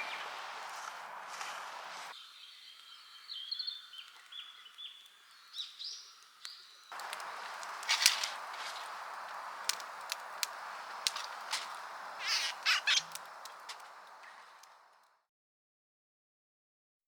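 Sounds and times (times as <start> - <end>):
small birds chirping: 0.0 - 15.1
outdoor noise: 0.0 - 15.3
sharp clicks and snaps: 6.4 - 11.8.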